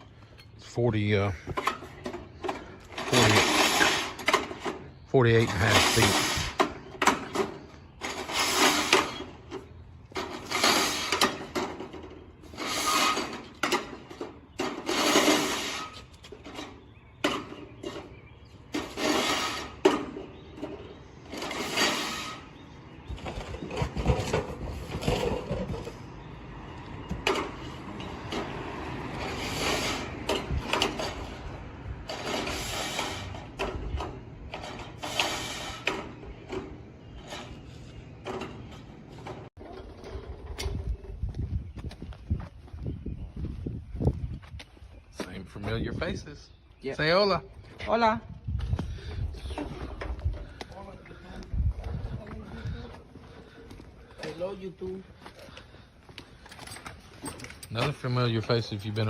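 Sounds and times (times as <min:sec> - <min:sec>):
gutter machine clattering: 0:01.5 - 0:18.1.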